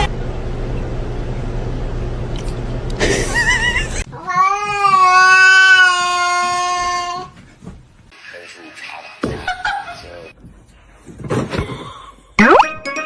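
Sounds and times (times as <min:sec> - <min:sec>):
steady background hum: 0:00.0 - 0:04.9
cat yowling: 0:04.1 - 0:07.4.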